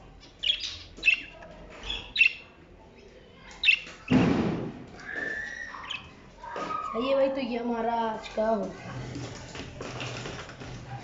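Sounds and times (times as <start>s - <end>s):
finches chirping: 0.2s - 2.5s, 3.6s - 3.9s, 5.3s - 6.1s.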